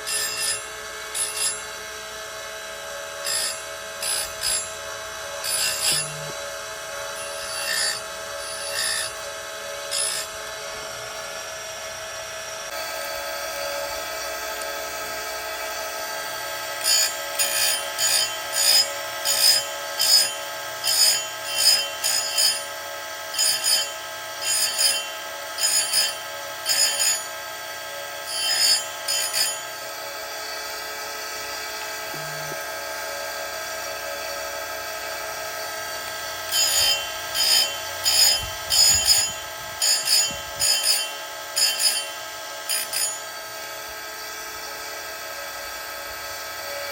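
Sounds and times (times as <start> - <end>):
chain grinder motor running: 0.0 - 46.9
grinding rasps on chain: 0.1 - 1.7, 3.2 - 4.8, 5.4 - 6.4, 7.0 - 9.2, 9.9 - 10.4, 16.8 - 27.4, 28.2 - 29.8, 36.4 - 43.4.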